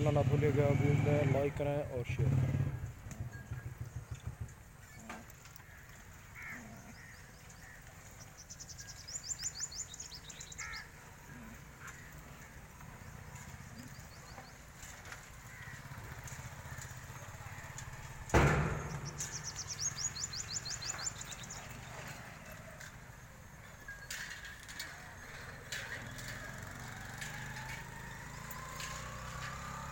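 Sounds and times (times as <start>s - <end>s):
small birds singing: 2.8s - 17.4s, 18.6s - 29.9s
loud thump: 18.3s - 19.2s.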